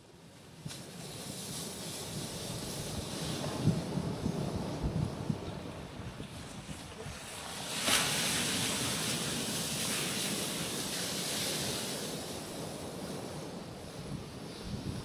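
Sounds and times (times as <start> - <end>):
waves crashing on rocky shore: 0.9 - 15.0
surf hissing over rocks: 6.9 - 15.0.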